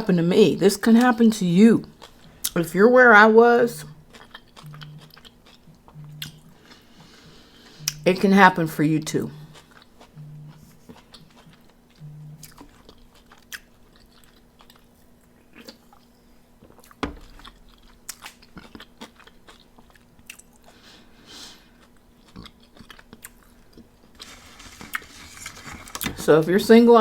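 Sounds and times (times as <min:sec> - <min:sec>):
chewing crispy chicken: 0:03.8 - 0:08.0, 0:09.4 - 0:26.1.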